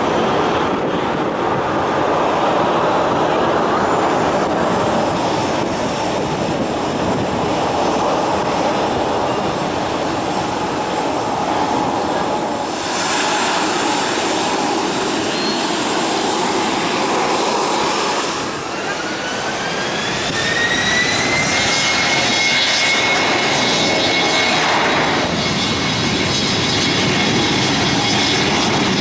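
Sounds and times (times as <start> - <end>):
airliner engines running: 0.0 - 29.0
sharp high hiss: 12.6 - 18.7.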